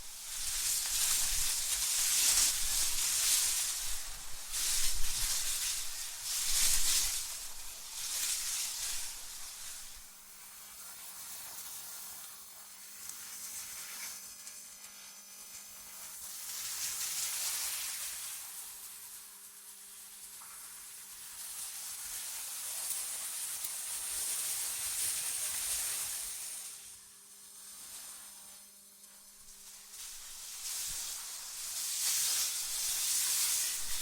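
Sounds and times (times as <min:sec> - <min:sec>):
wind gusts hissing: 0:32.5 - 0:34.0.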